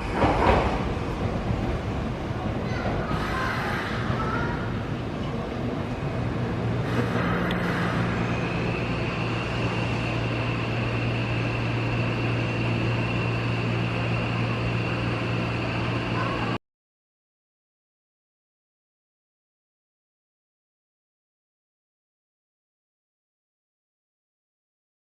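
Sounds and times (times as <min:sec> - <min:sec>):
electric train humming: 0:00.0 - 0:16.6.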